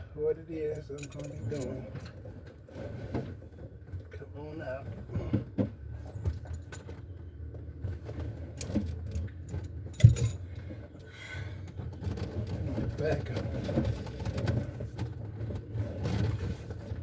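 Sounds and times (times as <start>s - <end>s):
metallic clicks of tools: 0.9s - 1.7s.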